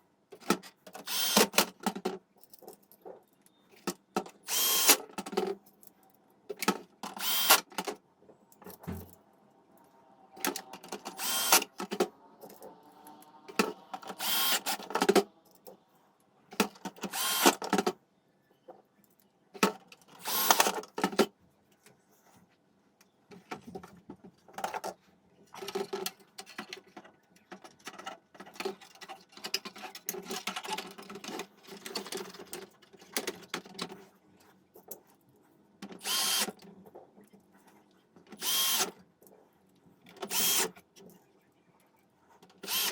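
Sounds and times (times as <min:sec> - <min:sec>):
electric screwdriver bursts: 0:01.0 - 0:01.6, 0:04.5 - 0:05.1, 0:07.1 - 0:07.7, 0:11.1 - 0:11.8, 0:14.0 - 0:14.9, 0:17.1 - 0:17.6, 0:20.2 - 0:20.7, 0:36.0 - 0:36.5, 0:38.4 - 0:38.9, 0:40.2 - 0:40.7, 0:42.6 - 0:42.9.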